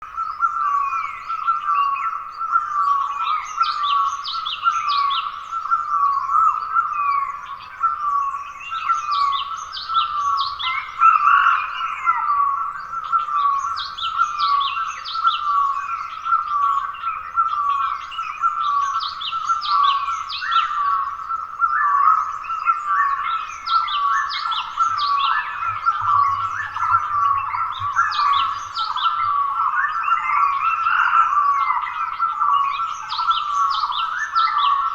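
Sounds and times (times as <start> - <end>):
birds high falling chirps: 23.2 - 31.4.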